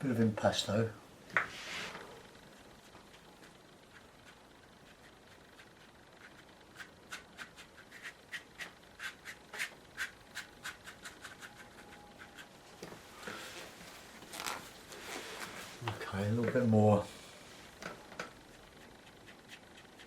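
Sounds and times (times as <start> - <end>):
paintbrush scratchy strokes: 1.5 - 12.6.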